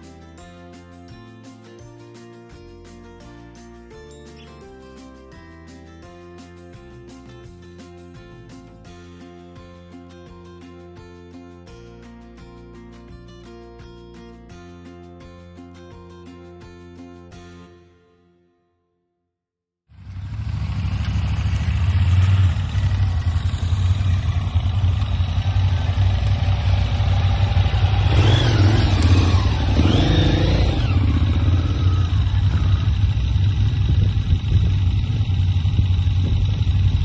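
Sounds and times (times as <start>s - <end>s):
motorcycle engine rumbling: 19.9s - 37.0s.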